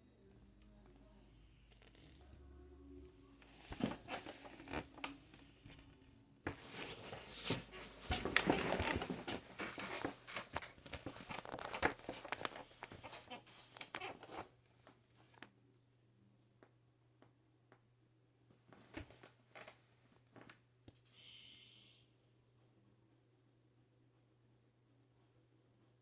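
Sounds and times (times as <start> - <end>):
rustling and crinkling: 3.2 - 15.4.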